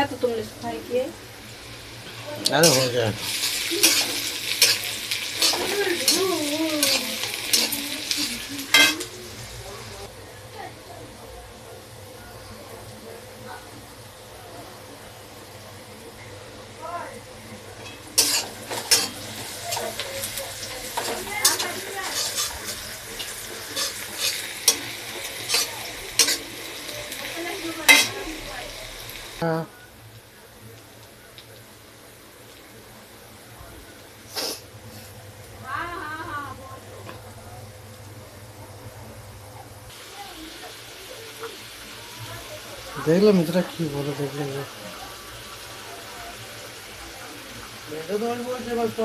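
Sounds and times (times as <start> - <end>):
chicken sizzling in a pan: 0.0 - 49.0
spatula scraping a pan: 2.5 - 9.1, 17.8 - 26.5.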